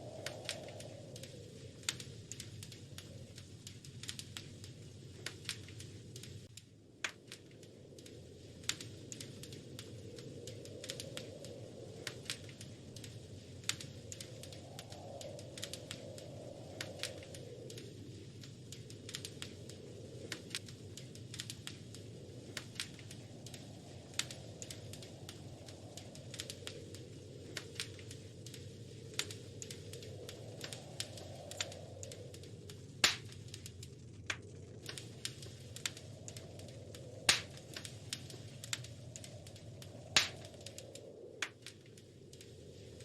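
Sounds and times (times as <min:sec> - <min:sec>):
wood fire crackling: 0:00.0 - 0:43.0.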